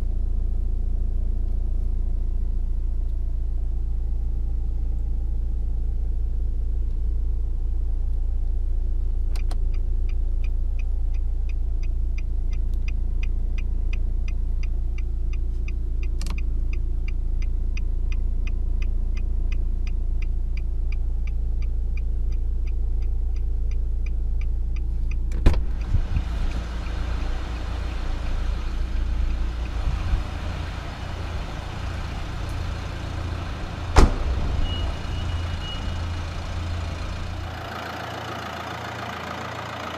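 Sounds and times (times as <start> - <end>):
even ticking: 9.7 - 28.5
sharp click: 15.6 - 16.8
diesel engine idling: 23.9 - 39.9.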